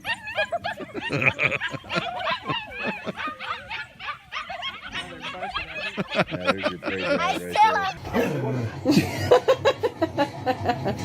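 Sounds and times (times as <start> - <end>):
dogs vocalizing: 0.0 - 9.6.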